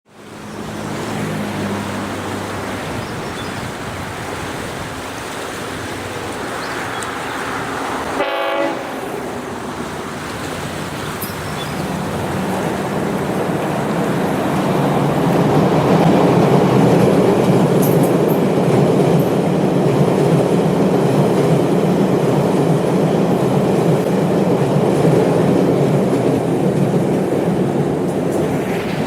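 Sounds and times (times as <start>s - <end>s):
diesel train running: 0.1s - 29.0s
train horn blast: 7.5s - 9.5s.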